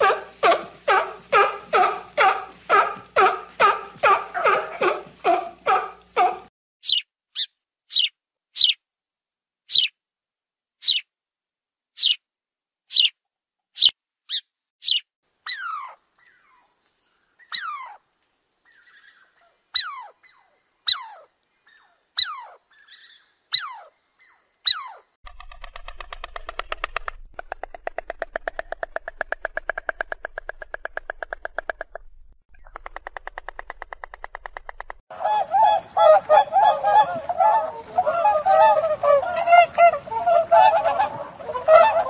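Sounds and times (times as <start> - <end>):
high downward-sliding animal calls: 24.7 - 32.0.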